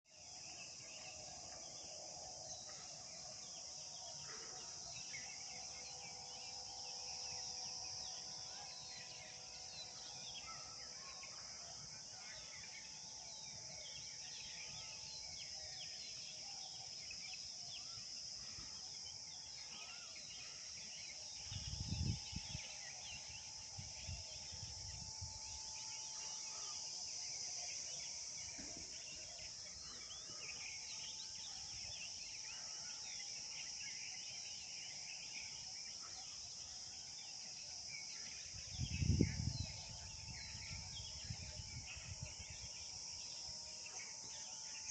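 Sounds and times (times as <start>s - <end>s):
high-pitched insect chorus: 0.1s - 44.9s.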